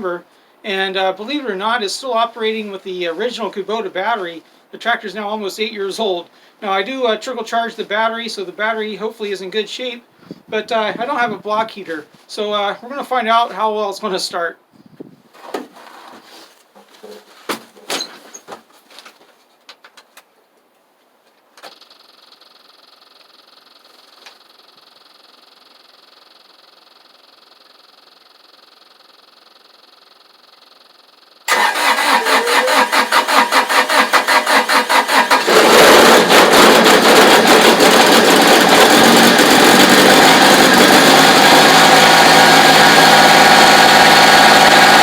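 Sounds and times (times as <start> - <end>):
diesel engine running: 31.5 - 45.0
starter cranking diesel engine: 31.5 - 45.0.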